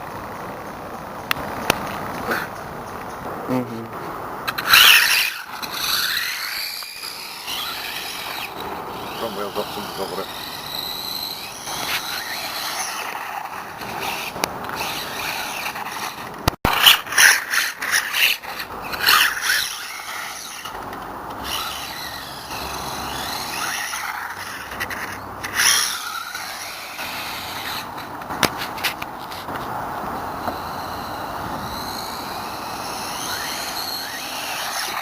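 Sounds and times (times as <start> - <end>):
tyres scraping over ground: 0.0 - 35.0
rc truck motor whine: 4.5 - 35.0.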